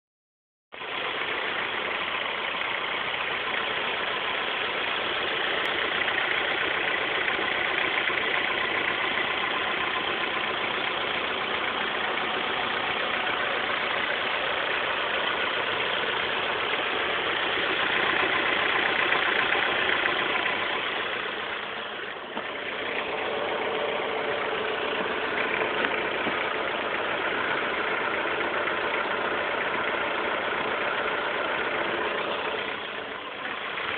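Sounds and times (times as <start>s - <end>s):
car engine idling with rattle: 0.7s - 33.9s.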